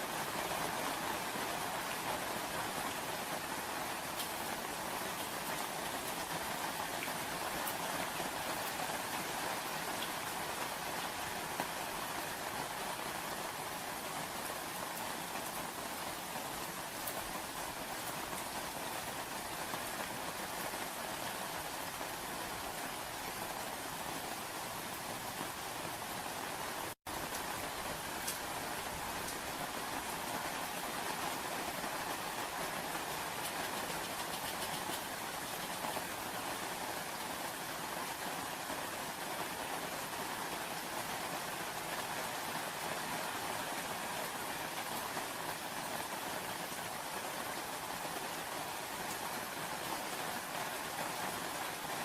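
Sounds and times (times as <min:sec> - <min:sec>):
steady rain falling: 0:00.0 - 0:52.0
faint raindrop ticks: 0:04.1 - 0:07.8, 0:27.3 - 0:28.5, 0:33.3 - 0:36.2.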